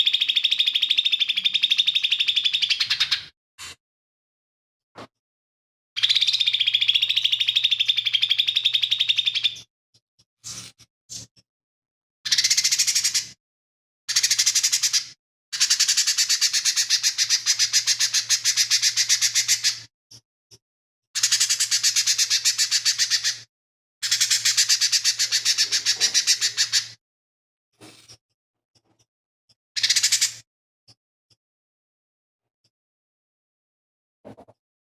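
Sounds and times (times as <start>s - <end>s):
bird chattering song: 0.0s - 3.3s, 6.0s - 9.7s, 12.3s - 13.4s, 14.1s - 19.8s, 21.2s - 23.4s, 24.0s - 27.0s, 29.8s - 30.4s.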